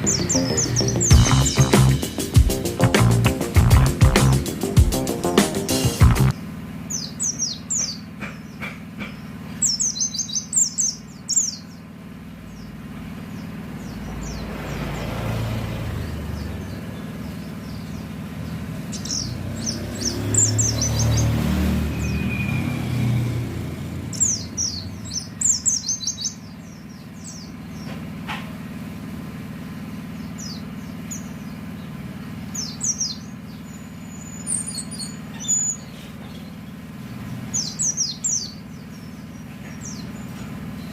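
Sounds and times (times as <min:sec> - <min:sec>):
passing vehicle rumble: 0:00.0 - 0:06.4, 0:12.3 - 0:25.8
bird rapid high chirping: 0:00.0 - 0:08.7, 0:09.5 - 0:11.8, 0:16.0 - 0:23.3, 0:24.0 - 0:27.9, 0:30.1 - 0:40.9.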